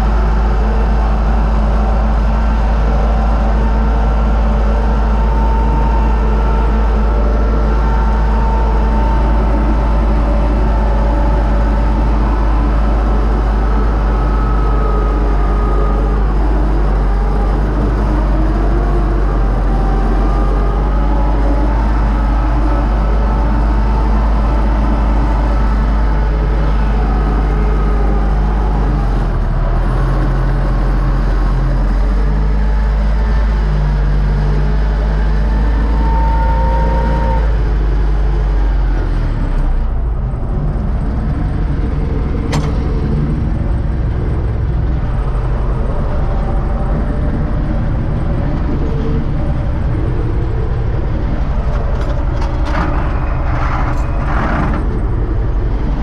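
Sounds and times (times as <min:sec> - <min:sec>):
tractor diesel engine running: 0:00.0 - 0:56.0
click: 0:42.5 - 0:42.8.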